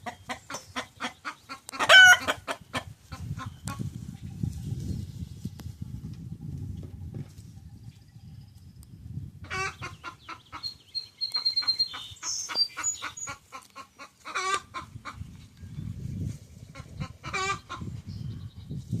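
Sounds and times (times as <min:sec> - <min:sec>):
hen drawn-out calls: 0:00.0 - 0:03.5, 0:09.4 - 0:15.3, 0:16.7 - 0:17.9
hen clucking: 0:00.0 - 0:04.2, 0:09.4 - 0:15.6, 0:16.6 - 0:18.1.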